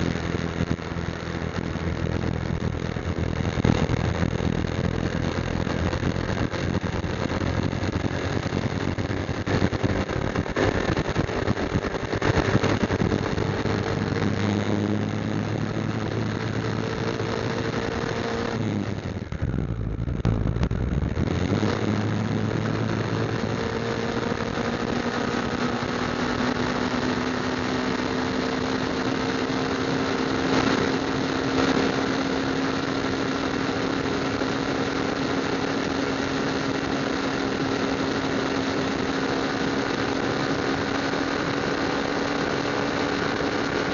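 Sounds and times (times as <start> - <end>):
low rumble: 0.0 - 17.4, 18.6 - 23.8
motorcycle engine running: 0.0 - 43.9.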